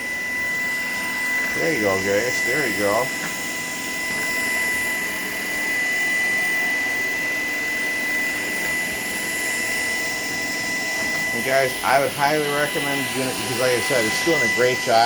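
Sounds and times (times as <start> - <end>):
cordless vacuum running: 0.0 - 15.0.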